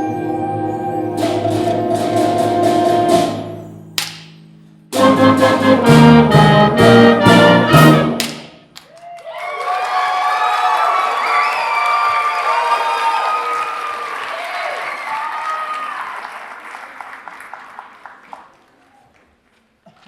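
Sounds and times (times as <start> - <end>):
school band brass and percussion: 0.0 - 8.7
sharp percussion hit: 1.0 - 8.8
audience applauding and cheering: 8.8 - 19.3.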